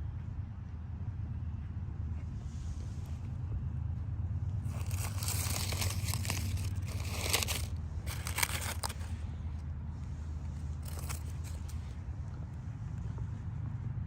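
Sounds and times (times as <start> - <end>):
crinkling and crunching: 4.7 - 9.2, 10.6 - 12.0.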